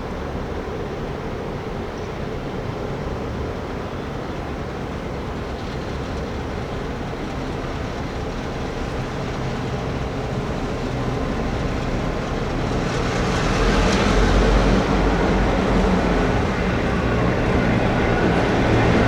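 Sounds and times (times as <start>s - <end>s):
rail and wheel noise: 0.0s - 19.0s
train rumbling past: 0.0s - 19.0s.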